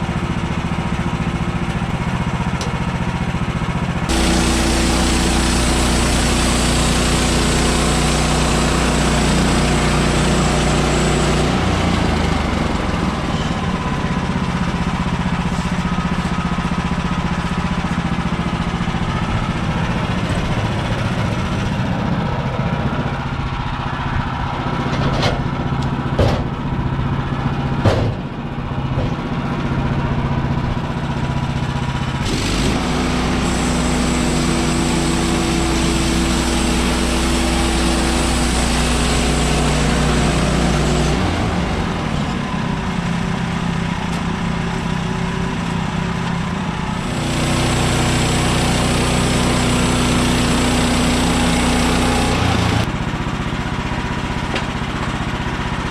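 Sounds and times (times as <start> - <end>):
sawmill gas engine running: 0.0 - 55.9
sharp knocks: 26.2 - 26.5, 27.8 - 28.3.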